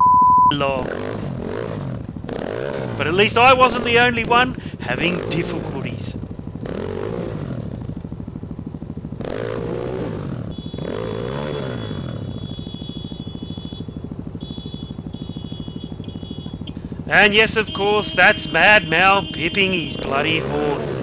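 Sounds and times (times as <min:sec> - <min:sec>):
dirt bike engines revving: 0:00.6 - 0:07.8, 0:09.2 - 0:13.7, 0:14.6 - 0:21.0
motorcycle horn: 0:10.5 - 0:20.9.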